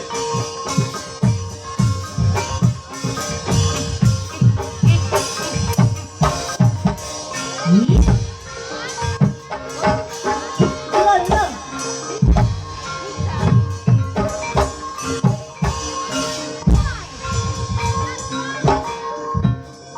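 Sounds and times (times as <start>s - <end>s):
low drum strokes: 0.0s - 10.0s, 16.6s - 18.8s
ringing keyed percussion: 0.0s - 19.9s
person singing: 7.3s - 14.7s.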